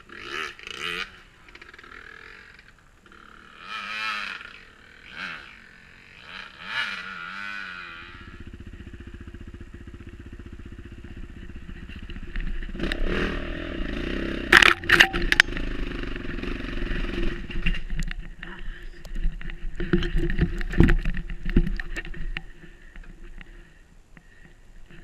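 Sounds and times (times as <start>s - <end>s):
dirt bike engine revving: 0.0s - 18.8s.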